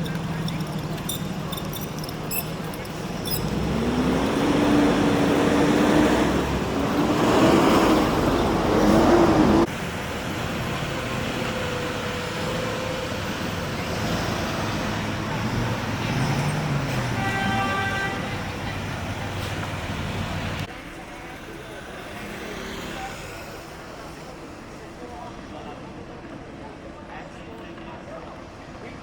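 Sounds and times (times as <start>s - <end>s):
motor vehicle engine wavering: 0.0s - 20.7s
steady traffic rumble: 0.0s - 29.0s.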